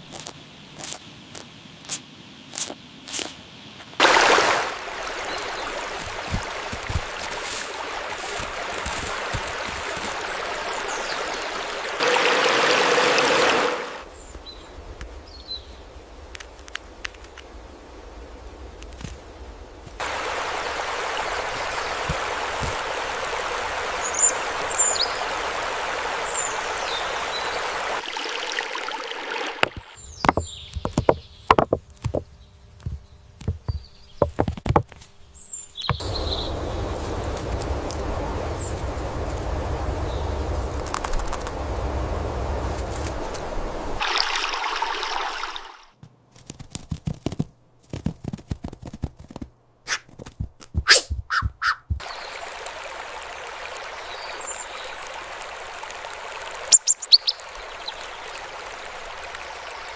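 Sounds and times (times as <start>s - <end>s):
rushing stream water: 4.0s - 18.7s, 19.3s - 31.7s, 35.9s - 46.0s, 51.3s - 59.9s
sharp clicks and knocks: 29.7s - 35.0s
high bird chirps: 50.9s - 52.3s, 56.7s - 58.0s.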